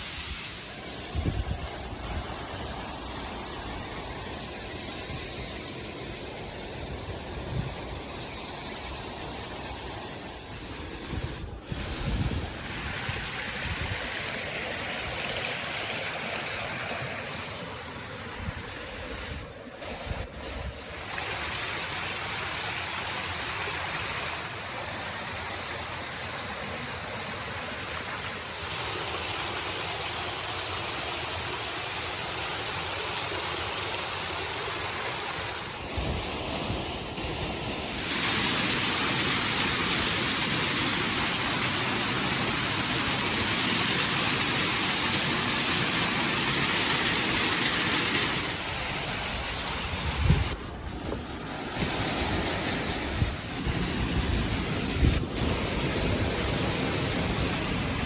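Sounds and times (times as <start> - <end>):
rushing stream water: 0.0 - 58.0
wind buffeting microphone: 0.3 - 14.2, 48.6 - 58.0.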